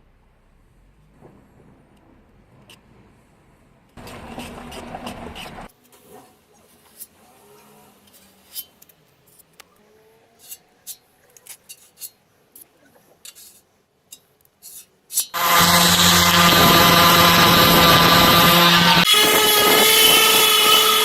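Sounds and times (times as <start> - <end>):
electric power tool running: 15.4 - 21.0.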